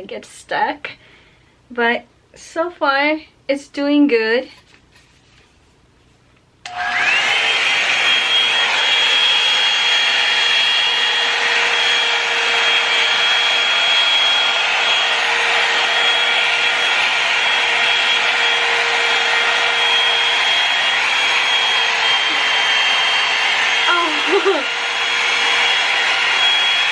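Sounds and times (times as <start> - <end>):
hair dryer motor whine: 6.6 - 26.9.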